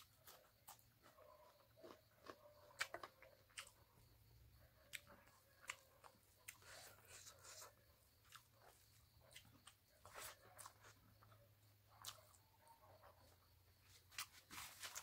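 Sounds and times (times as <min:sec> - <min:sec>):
chewing with wet clicks: 0:00.2 - 0:04.0, 0:04.7 - 0:12.5.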